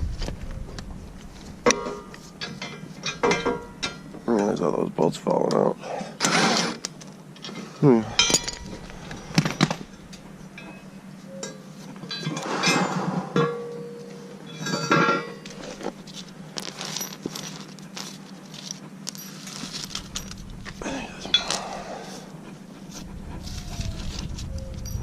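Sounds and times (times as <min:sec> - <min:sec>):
metal tools and bolts clinking: 0:01.6 - 0:04.7, 0:07.4 - 0:22.4, 0:23.5 - 0:25.0.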